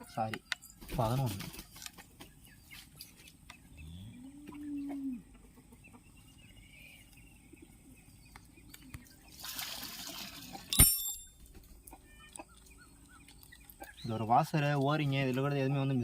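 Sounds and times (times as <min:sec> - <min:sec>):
cow mooing: 0:03.8 - 0:05.2
sharp metal clank: 0:10.7 - 0:11.5.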